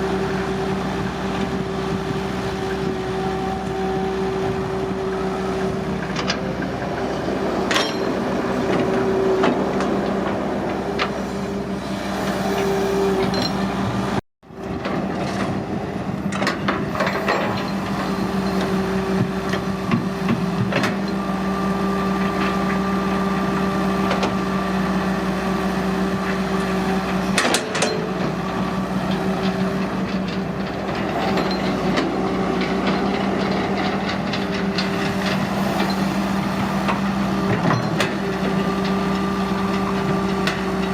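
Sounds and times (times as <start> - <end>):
diesel engine running: 0.0 - 40.9
metallic knocks and clanks: 7.7 - 8.8.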